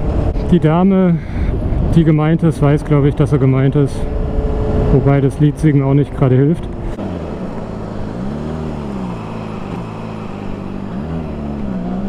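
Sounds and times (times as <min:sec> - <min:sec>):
wind noise: 0:00.0 - 0:05.9
motorcycle engine running: 0:06.5 - 0:12.0.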